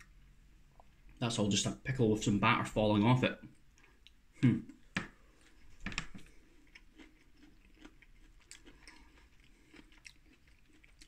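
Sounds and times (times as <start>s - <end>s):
person chewing softly: 0.0s - 1.3s, 3.4s - 11.0s
mouth sounds: 4.3s - 4.8s.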